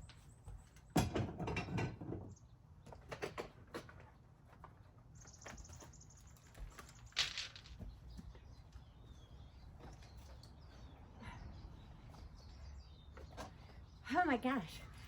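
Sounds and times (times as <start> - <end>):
small clicks and clatter: 2.9 - 8.3.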